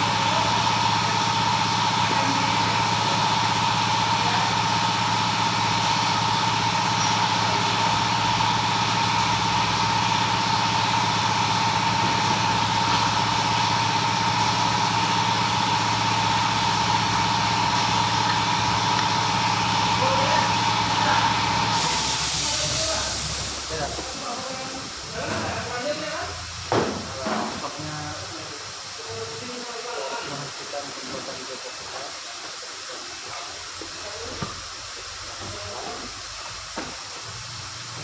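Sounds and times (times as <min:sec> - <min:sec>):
engine idling with whine: 0:00.0 - 0:26.7.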